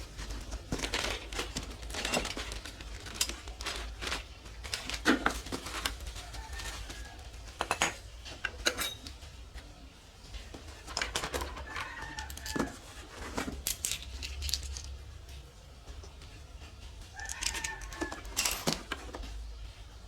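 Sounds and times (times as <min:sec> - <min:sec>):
metal clinks and knocks: 0:00.7 - 0:05.8, 0:10.9 - 0:15.0, 0:17.1 - 0:19.3.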